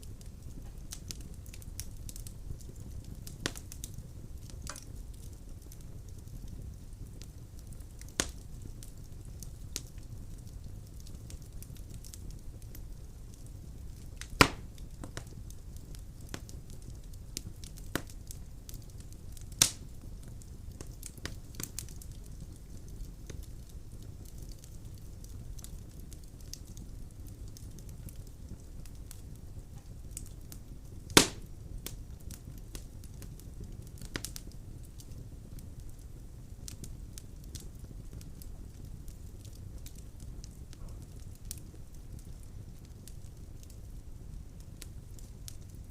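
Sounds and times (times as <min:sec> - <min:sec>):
fire crackling: 0:00.0 - 0:45.9
fire flames rumbling: 0:00.0 - 0:45.9
logs popping: 0:14.3 - 0:15.3, 0:31.1 - 0:31.5.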